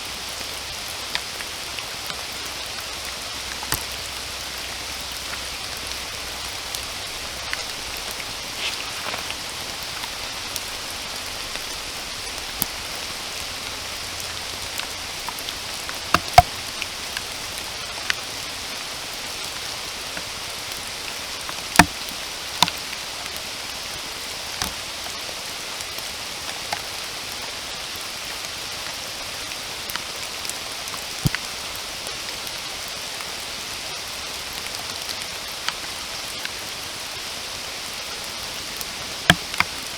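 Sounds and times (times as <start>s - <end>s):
rain falling in forest: 0.0s - 39.9s
raindrop impacts: 2.0s - 23.3s.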